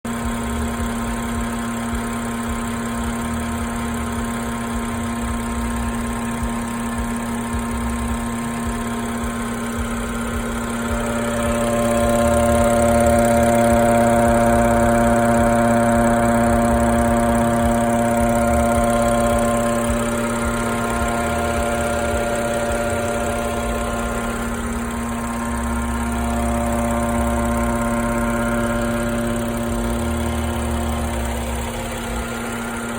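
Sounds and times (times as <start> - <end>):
car engine running with buzz: 0.0 - 32.9.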